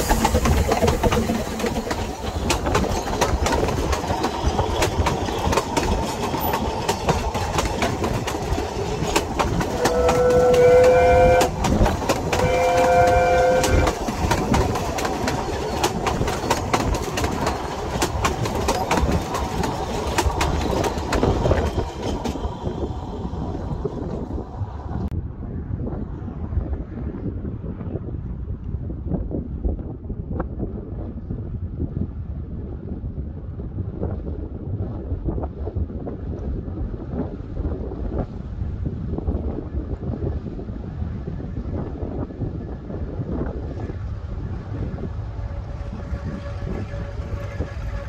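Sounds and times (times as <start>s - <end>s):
train wheels clicking over rail joints: 0.0s - 24.4s
steam train whistle: 9.6s - 14.0s, 45.4s - 48.0s.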